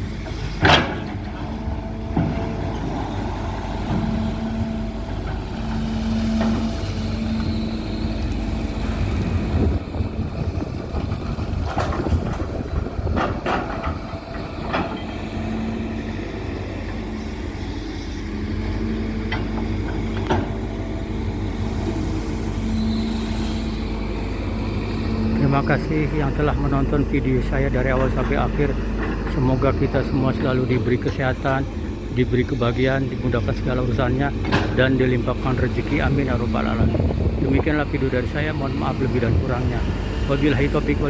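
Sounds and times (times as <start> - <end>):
excavator diesel engine running: 0.0 - 41.0
sharp knocks and clanks: 0.6 - 1.5, 10.9 - 15.4, 19.2 - 20.6, 34.3 - 35.0.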